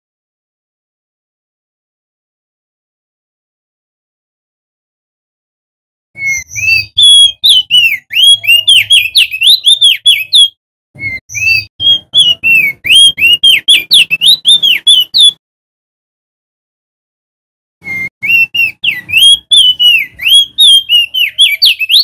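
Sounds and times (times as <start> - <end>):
bird singing whistled phrases: 6.2 - 15.4, 17.8 - 22.0.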